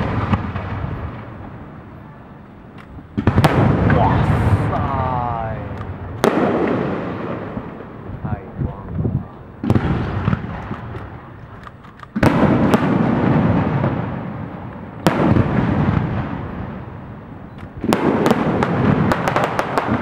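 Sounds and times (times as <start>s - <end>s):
fireworks booming: 0.0s - 20.0s
small crackles: 10.4s - 12.2s.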